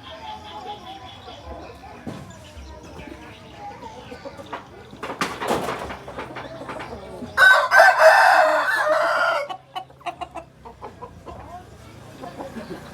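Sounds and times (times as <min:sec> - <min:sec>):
soft clucks and clicks: 0:03.0 - 0:07.4, 0:09.5 - 0:12.9
rooster crowing: 0:07.4 - 0:09.6.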